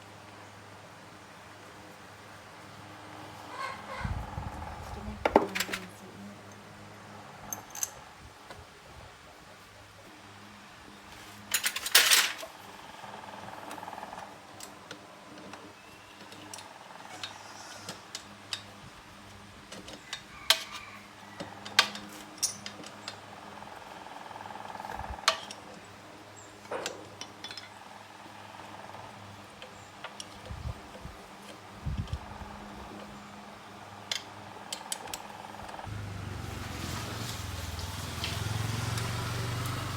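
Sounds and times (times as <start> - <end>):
metal tools clinking and clattering: 5.4 - 5.9, 11.5 - 12.5, 21.7 - 22.8.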